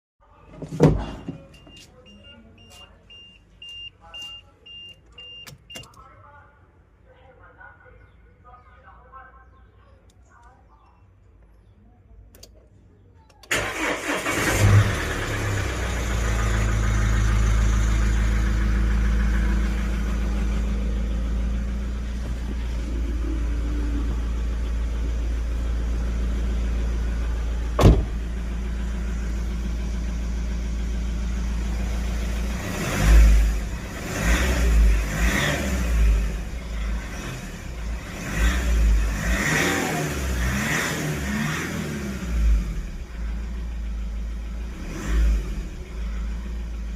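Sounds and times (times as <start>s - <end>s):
diesel engine starting and idling: 13.3s - 46.9s
engine throttle blips: 13.5s - 46.9s.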